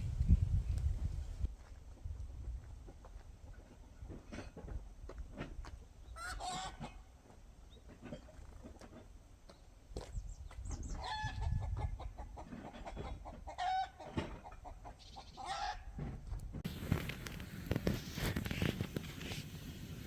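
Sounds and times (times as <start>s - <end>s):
chickens calling: 6.1s - 7.1s, 10.8s - 16.0s
steady hiss with crackles: 16.7s - 20.0s.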